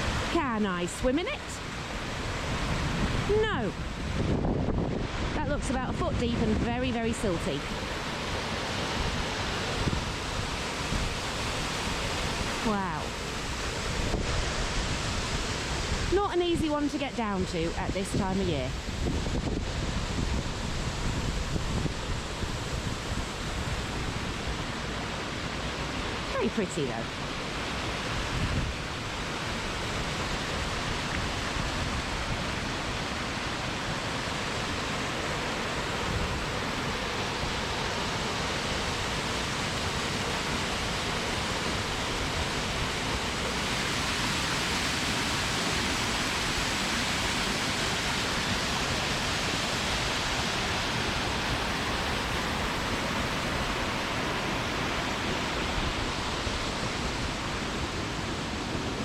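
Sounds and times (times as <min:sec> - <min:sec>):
wind buffeting microphone: 0:00.0 - 0:25.2, 0:27.6 - 0:33.5
waterfall rushing: 0:00.0 - 0:59.0.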